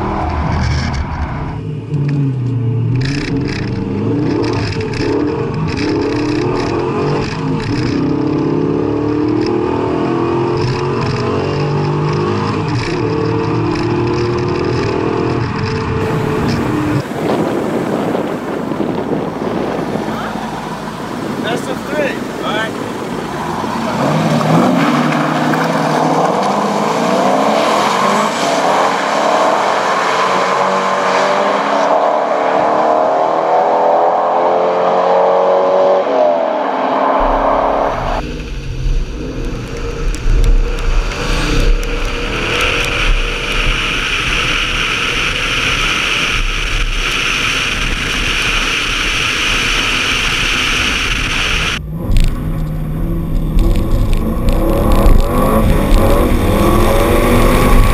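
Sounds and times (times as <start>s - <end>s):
car engines accelerating: 0.0s - 57.9s
low engine rumble: 13.0s - 25.8s, 37.1s - 57.9s.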